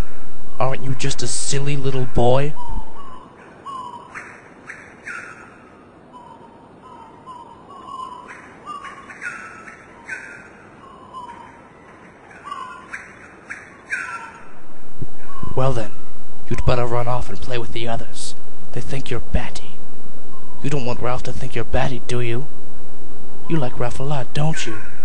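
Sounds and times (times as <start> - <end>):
birds singing: 0.0 - 14.6, 15.2 - 17.8
faint steady hiss: 0.0 - 25.0.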